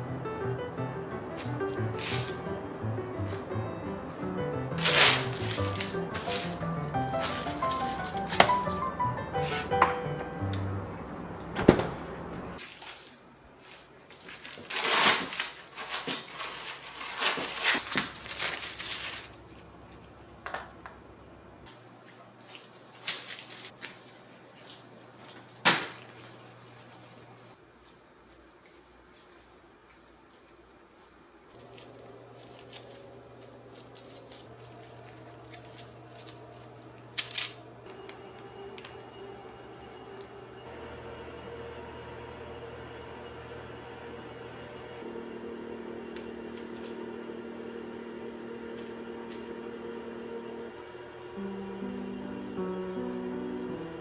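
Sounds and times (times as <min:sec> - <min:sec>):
steady low hum: 0:00.0 - 0:12.6
rustling and scraping: 0:01.4 - 0:02.4, 0:04.1 - 0:09.8, 0:12.5 - 0:20.0, 0:21.7 - 0:37.6.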